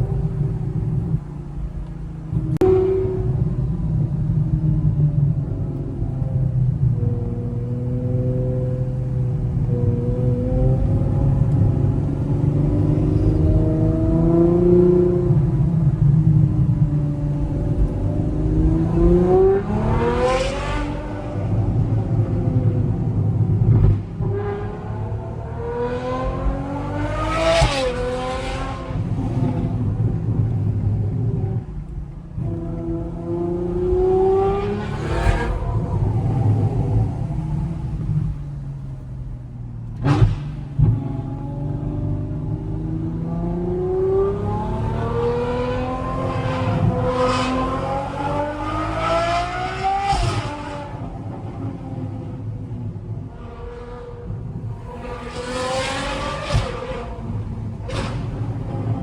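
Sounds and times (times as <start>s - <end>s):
car exhaust accelerating: 0.0s - 59.0s
gear change thump: 39.8s - 41.3s.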